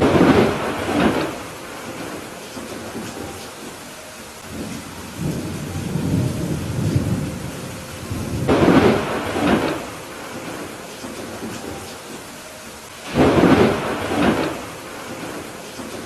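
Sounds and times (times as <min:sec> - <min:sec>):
thunder rumble and crack: 0:00.0 - 0:03.0, 0:04.4 - 0:11.5, 0:13.1 - 0:16.0
steady rain: 0:00.0 - 0:16.0.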